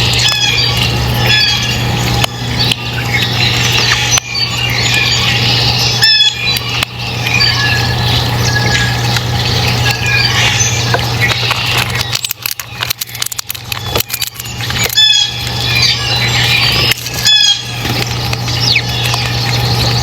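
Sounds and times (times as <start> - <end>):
loud squeaky calls: 0.0 - 9.0, 13.9 - 20.0
small birds chirping: 0.0 - 20.0
steady low hum: 0.0 - 20.0
sharp clicks: 10.9 - 19.9.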